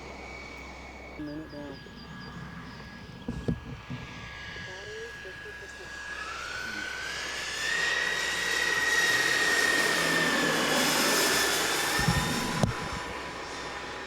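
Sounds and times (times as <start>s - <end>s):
model jet turbines whining: 0.0s - 14.0s
short low thumps: 2.3s - 4.8s.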